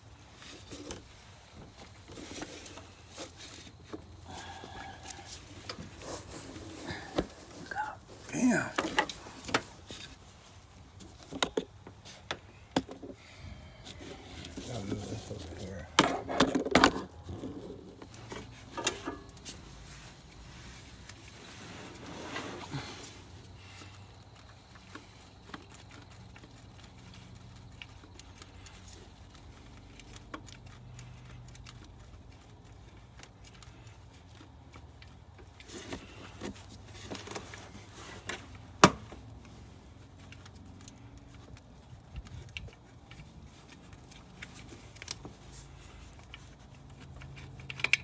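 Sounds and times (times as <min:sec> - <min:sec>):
tools and metal parts clinking: 0:42.4 - 0:48.0.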